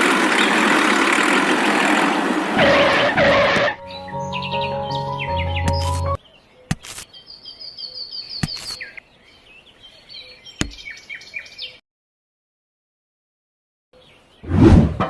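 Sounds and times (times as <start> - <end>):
birds chirping: 2.6 - 11.8
background music: 3.2 - 6.2.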